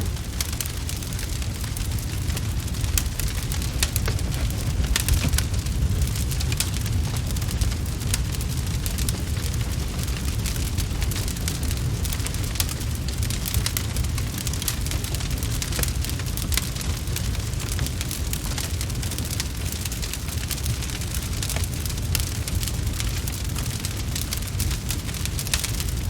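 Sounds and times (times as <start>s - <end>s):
steady low rumble: 0.0s - 19.6s
wood fire crackling: 0.0s - 26.0s.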